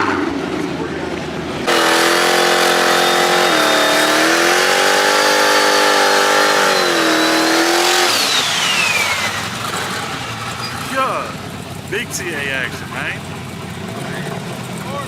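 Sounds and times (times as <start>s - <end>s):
car engine at high revs: 0.0s - 15.0s.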